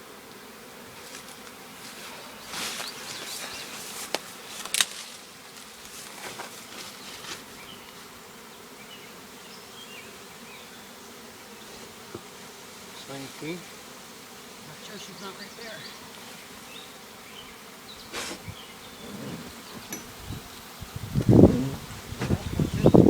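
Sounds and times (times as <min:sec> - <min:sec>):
bee swarm buzzing: 0:00.0 - 0:23.0
rustling: 0:01.0 - 0:08.1, 0:18.1 - 0:20.2.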